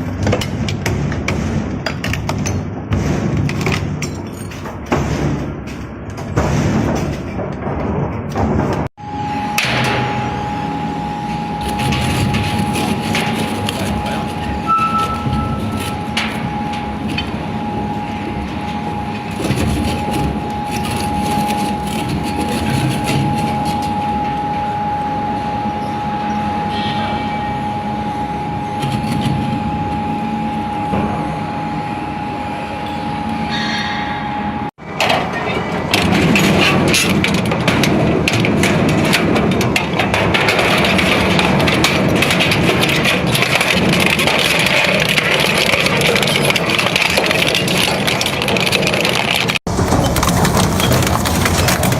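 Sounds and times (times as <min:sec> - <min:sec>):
knocks and rattles: 0:00.0 - 0:08.9, 0:34.8 - 0:51.9
heavy machine whining and rumbling: 0:04.7 - 0:51.9.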